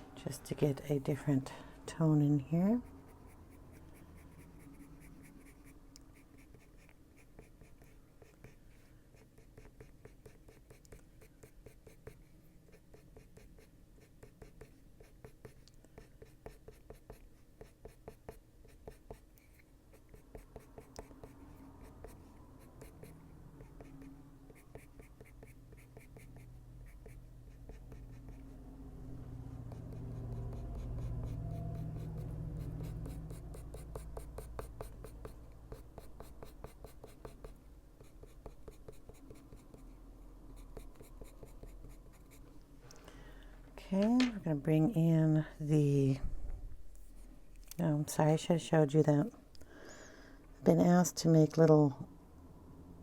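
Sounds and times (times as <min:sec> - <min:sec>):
pencil scratching on paper: 0:02.0 - 0:28.6, 0:29.4 - 0:42.4.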